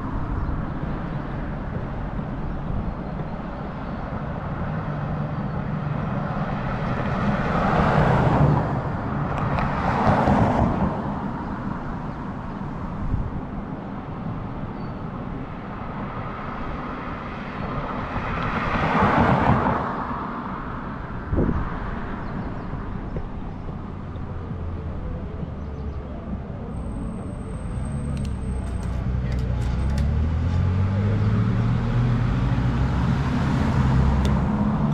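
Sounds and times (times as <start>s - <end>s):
wind rumble on microphone: 0.0s - 27.7s
vehicles passing: 0.0s - 34.9s.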